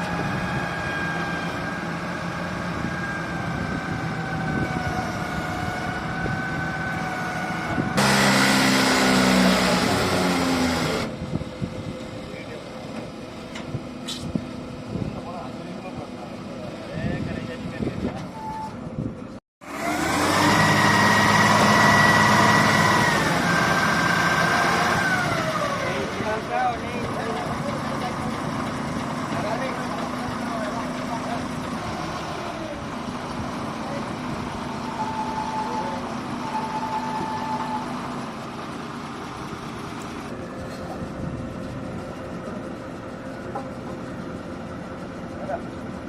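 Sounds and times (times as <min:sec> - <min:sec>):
heavy diesel engine revving: 0:00.0 - 0:11.7, 0:19.6 - 0:42.7.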